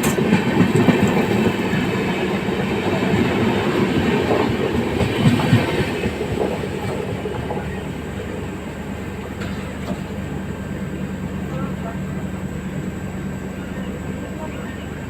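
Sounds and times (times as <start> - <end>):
train wheels clattering over rails: 0.0 - 10.6
loud train knocks: 0.0 - 12.1.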